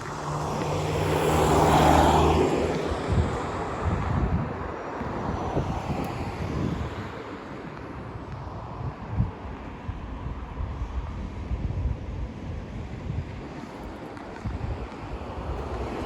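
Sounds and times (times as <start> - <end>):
vehicle passing close by: 0.0 - 4.6.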